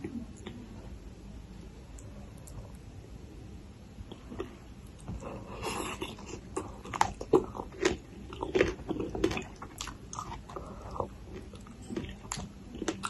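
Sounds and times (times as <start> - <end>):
close chewing with crunches: 4.3 - 13.0.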